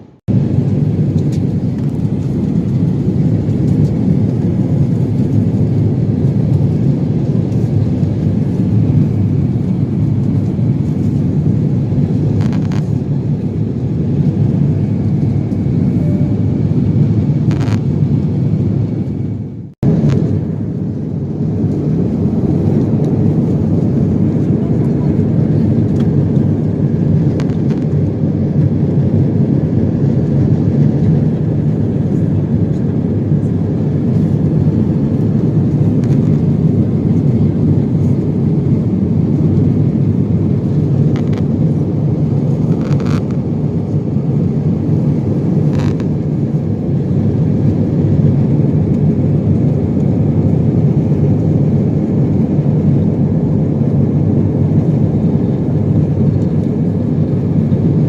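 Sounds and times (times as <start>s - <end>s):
airliner cabin engine drone: 0.0s - 58.0s.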